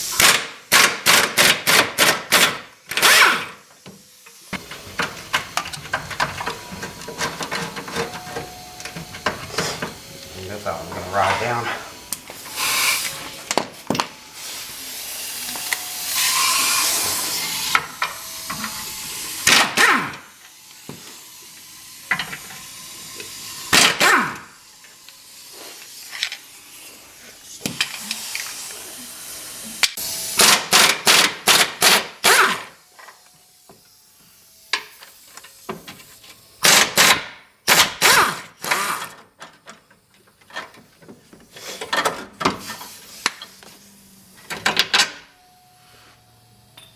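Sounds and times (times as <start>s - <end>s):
aerosol spray hiss: 12.2s - 13.4s, 14.2s - 17.8s, 25.2s - 29.8s, 42.6s - 44.0s.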